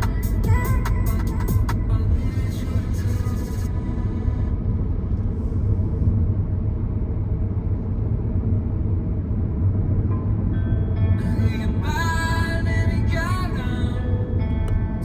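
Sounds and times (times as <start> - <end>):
car driving on road: 0.0 - 15.0.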